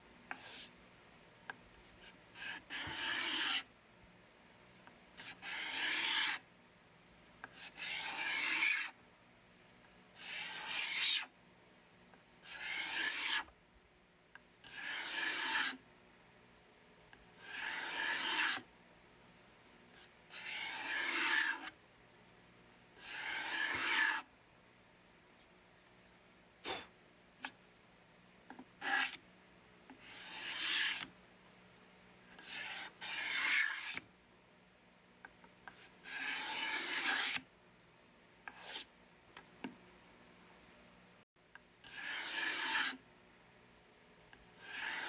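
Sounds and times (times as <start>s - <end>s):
card scraper rasping strokes: 2.0s - 3.6s, 7.6s - 8.9s, 12.4s - 13.5s, 14.6s - 15.8s, 17.4s - 18.6s, 20.3s - 21.7s, 23.0s - 24.3s, 28.8s - 29.2s, 30.0s - 31.1s, 32.4s - 34.0s, 36.0s - 37.4s, 41.9s - 43.0s, 44.6s - 45.0s.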